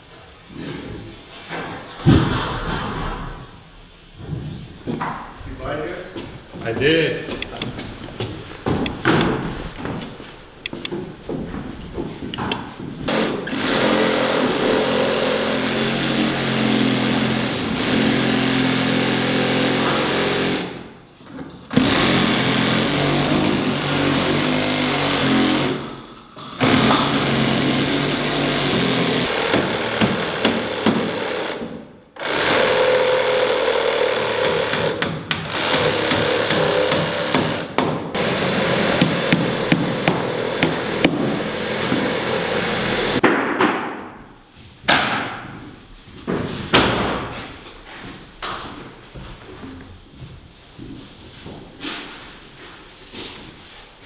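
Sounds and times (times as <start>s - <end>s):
power saw cutting wood: 13.1s - 20.9s, 21.7s - 43.2s.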